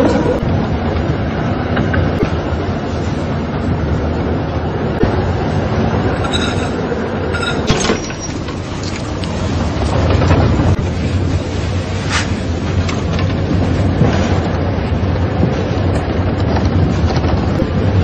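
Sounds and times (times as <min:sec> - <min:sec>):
train rumble inside carriage: 0:00.0 - 0:18.0
high ringing tone: 0:06.2 - 0:08.2.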